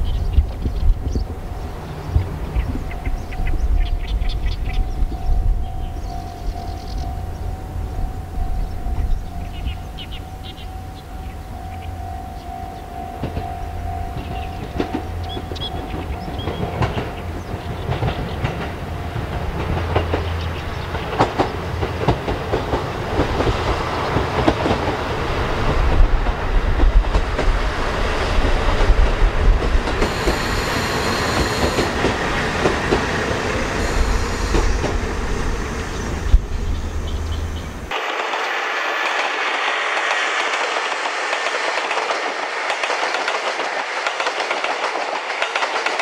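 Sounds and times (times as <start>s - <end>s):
distant train rumble: 0.0s - 46.0s
wheels clattering over rails: 13.2s - 46.0s
high-pitched squeals: 30.0s - 42.1s.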